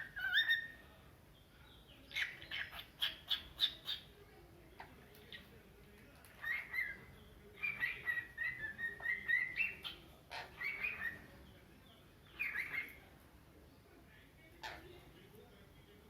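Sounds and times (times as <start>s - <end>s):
cockatiel chirping: 0.0s - 0.8s, 2.1s - 4.0s, 6.4s - 7.0s, 7.6s - 11.2s, 12.3s - 13.0s.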